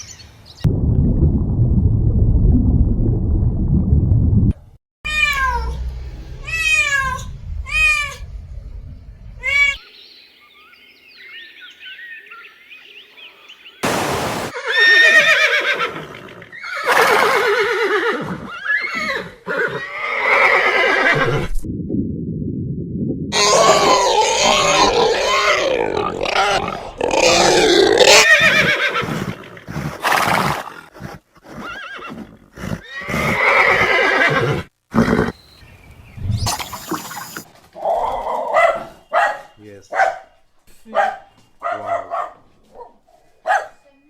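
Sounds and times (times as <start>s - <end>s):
horse whinnying: 14.6s - 21.5s, 23.4s - 35.4s
faint chirping: 35.3s - 40.6s.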